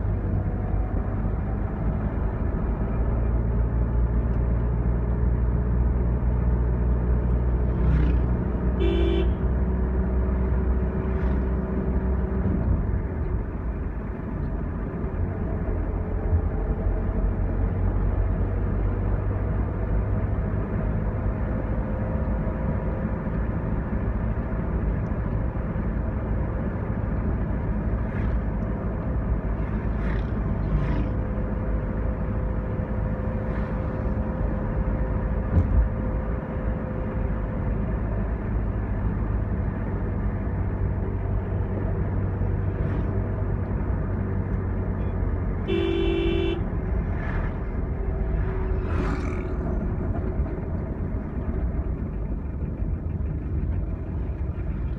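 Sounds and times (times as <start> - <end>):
vehicle engine and road noise: 0.0 - 54.9
vehicle horn honk: 8.8 - 9.4, 45.7 - 46.7.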